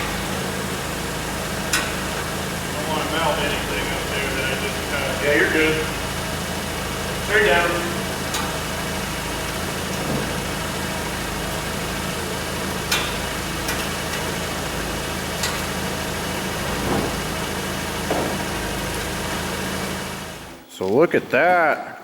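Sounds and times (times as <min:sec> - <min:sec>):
steady machine hum: 0:00.0 - 0:20.7
sharp metal knocks and clunks: 0:16.6 - 0:18.7.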